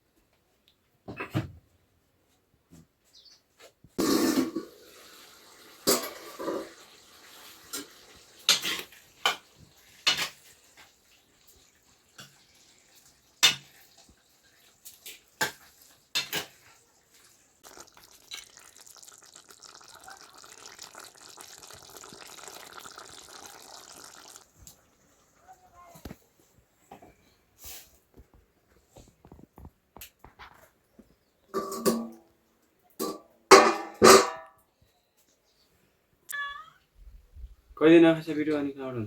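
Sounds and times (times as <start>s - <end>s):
pots and pans clattering: 4.0s - 7.0s, 7.6s - 10.9s, 13.4s - 14.1s, 15.1s - 16.7s, 31.5s - 32.2s, 33.0s - 34.6s
running water: 4.0s - 25.7s.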